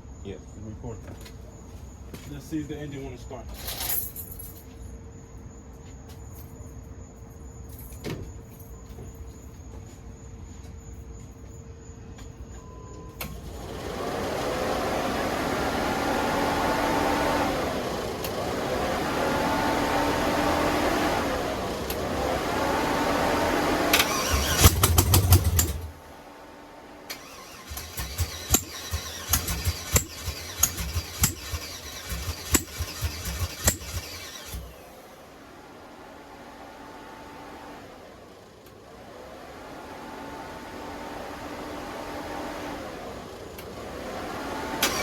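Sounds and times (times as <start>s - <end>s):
irregular starter clicks: 13.2s - 13.6s, 18.2s - 18.4s, 23.9s - 25.9s, 27.1s - 34.9s, 44.8s - 45.0s
engine firing with sharp pops: 23.9s - 26.0s, 27.1s - 34.9s
engine starter cranking: 23.9s - 26.0s, 27.1s - 35.0s, 44.8s - 45.0s.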